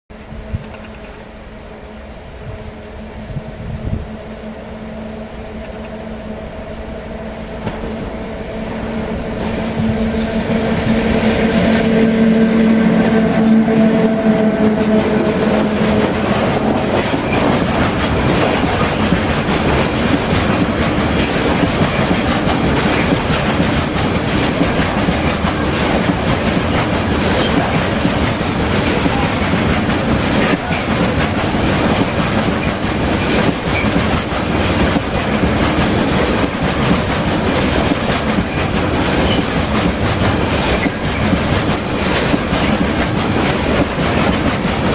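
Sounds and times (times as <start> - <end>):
train wheels clickety-clack: 0.3 - 1.3, 7.4 - 44.9
steady pitched tone: 1.2 - 20.0.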